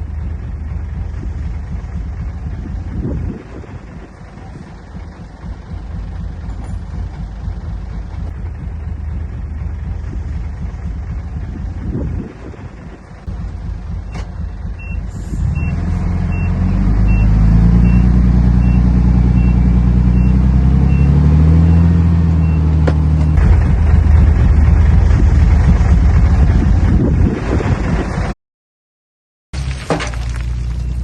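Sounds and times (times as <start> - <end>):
diesel machine engine under load: 0.0 - 28.3
rough engine rumble: 0.0 - 28.4, 29.6 - 31.0
backup alarm beeping: 19.4 - 21.2.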